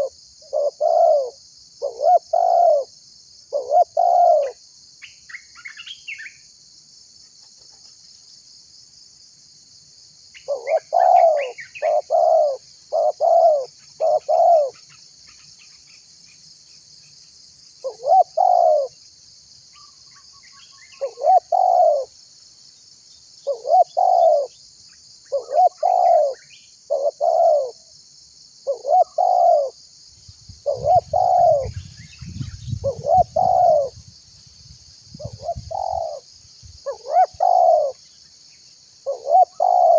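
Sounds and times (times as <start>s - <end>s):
dove cooing: 0.0s - 2.9s, 3.5s - 4.6s, 10.5s - 14.8s, 17.8s - 19.0s, 21.0s - 22.1s, 23.5s - 24.6s, 25.3s - 27.8s, 28.6s - 29.8s, 30.6s - 34.0s, 35.2s - 36.2s, 36.8s - 38.0s, 39.0s - 39.9s.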